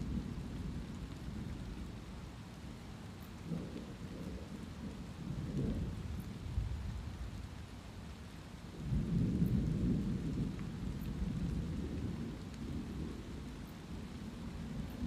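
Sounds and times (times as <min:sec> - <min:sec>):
light rain hissing: 0:00.0 - 0:15.0.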